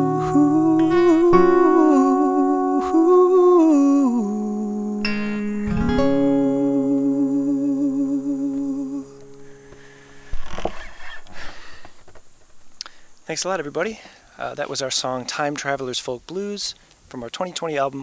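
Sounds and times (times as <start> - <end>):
person humming a melody: 0.0 - 9.6
fingerpicked acoustic guitar: 0.0 - 13.1.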